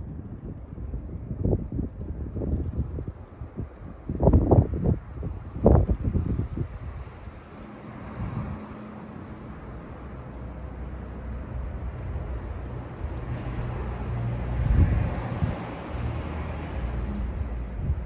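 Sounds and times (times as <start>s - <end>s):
low mechanical rumble: 9.5s - 18.0s.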